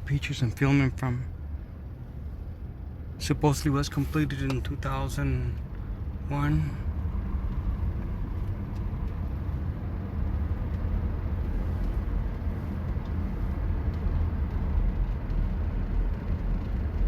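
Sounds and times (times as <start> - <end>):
pickup truck engine and tyre rumble: 0.0 - 17.0.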